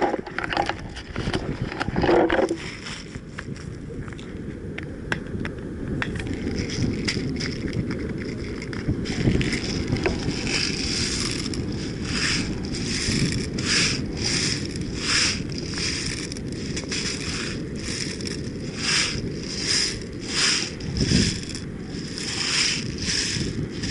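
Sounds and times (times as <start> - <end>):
wind rumbling on microphone: 0.0 - 23.9
rhythmic crunching: 9.5 - 23.9.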